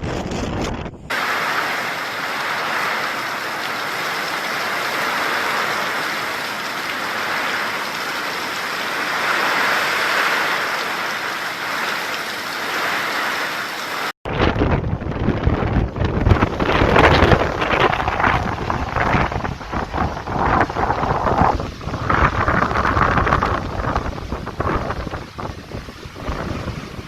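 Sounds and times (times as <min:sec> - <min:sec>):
wind buffeting microphone: 0:00.0 - 0:01.3, 0:14.2 - 0:27.0
heavy rain pouring: 0:01.1 - 0:27.0.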